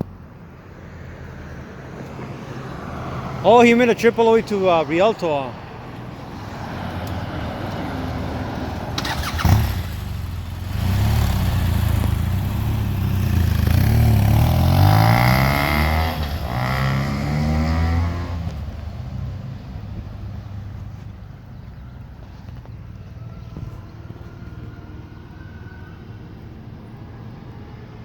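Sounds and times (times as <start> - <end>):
motorcycle engine passing: 6.7 - 19.0.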